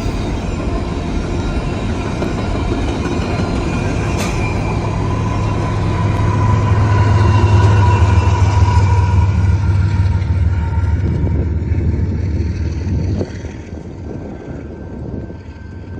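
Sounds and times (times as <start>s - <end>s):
diesel locomotive engine rumble: 0.0s - 15.9s
high ringing tone: 3.8s - 9.5s.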